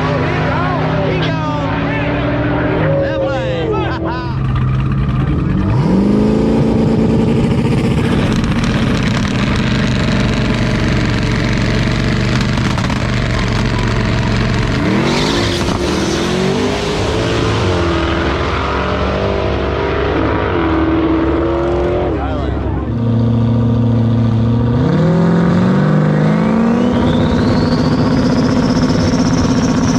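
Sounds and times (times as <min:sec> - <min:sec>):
race car accelerating through gears: 0:13.6 - 0:23.6.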